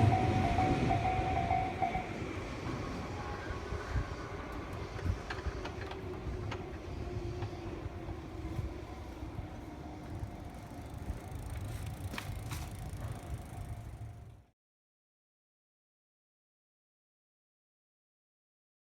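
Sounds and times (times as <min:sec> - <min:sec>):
electric train rumbling past: 0:00.0 - 0:14.5.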